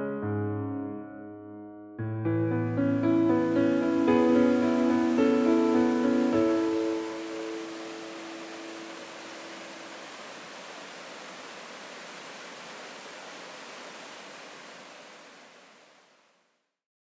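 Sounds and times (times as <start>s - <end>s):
waterfall rushing: 2.7s - 16.4s.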